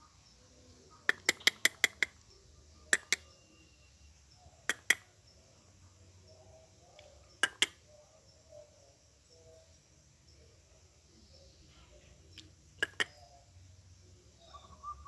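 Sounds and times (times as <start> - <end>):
sharp clicks: 1.1 - 2.3, 2.9 - 3.3, 4.7 - 5.1, 7.0 - 7.8, 12.3 - 13.2
faint low dove coos: 14.2 - 15.0.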